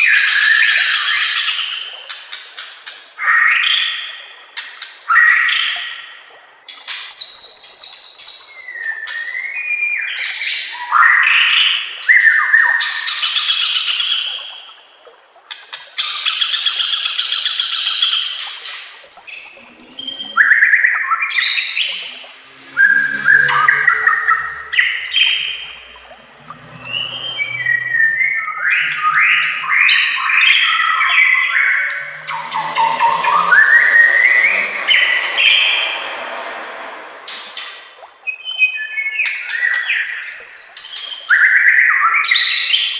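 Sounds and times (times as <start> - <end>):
bird singing whistles and trills: 19.1 - 35.8, 38.2 - 42.9.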